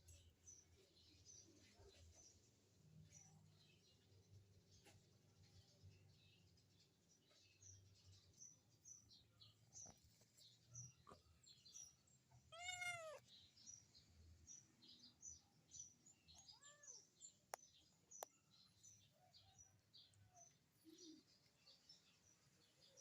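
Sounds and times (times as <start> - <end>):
kitten meowing: 12.5 - 13.2.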